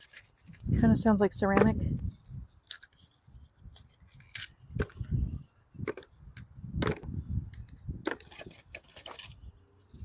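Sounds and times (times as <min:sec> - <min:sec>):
charcoal clicking and cracking: 0:02.4 - 0:05.1.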